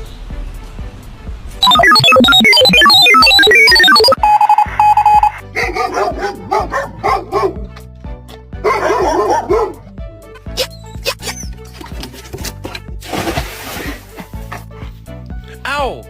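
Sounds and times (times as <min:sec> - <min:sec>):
background music: 0:01.5 - 0:16.0
dog barking and yipping: 0:05.6 - 0:07.6, 0:08.6 - 0:09.8.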